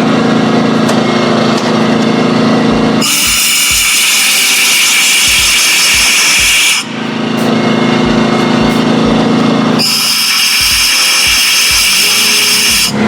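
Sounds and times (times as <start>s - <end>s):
air compressor motor humming: 0.0s - 13.0s
compressed air hissing: 3.0s - 7.6s, 8.7s - 13.0s.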